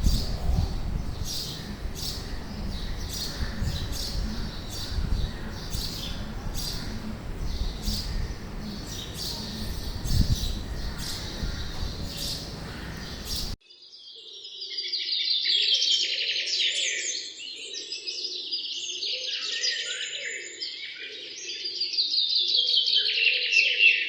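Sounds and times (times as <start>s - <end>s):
birds chirping high: 0.0s - 13.6s
steady low rumble: 0.0s - 13.6s.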